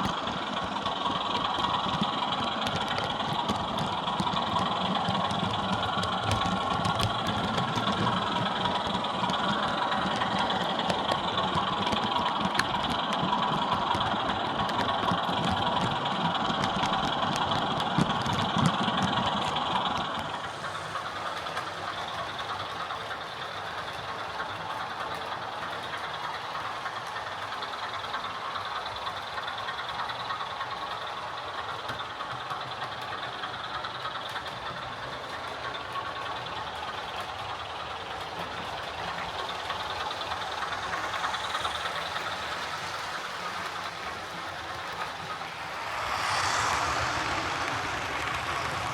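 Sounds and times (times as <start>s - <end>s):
diesel engine sound from speaker: 0.0s - 48.9s.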